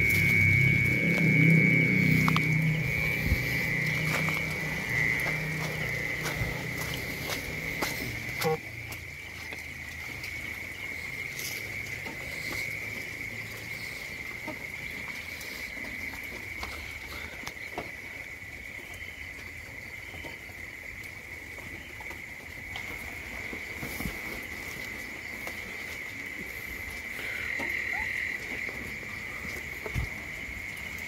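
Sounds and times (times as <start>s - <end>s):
insect chorus trilling: 0.0s - 31.0s
rain drips tapping: 0.0s - 31.0s.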